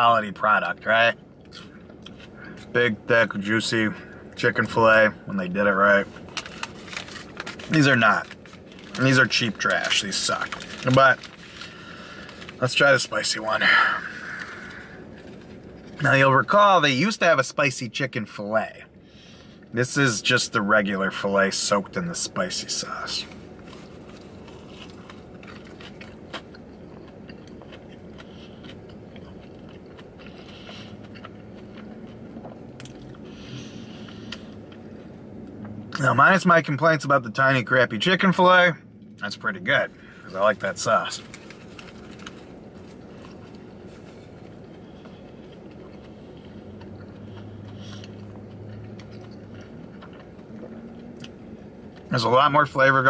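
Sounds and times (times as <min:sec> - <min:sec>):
low steady hum: 0:00.0 - 0:53.0
person chewing food: 0:01.4 - 0:02.7, 0:23.4 - 0:35.8, 0:41.2 - 0:52.1.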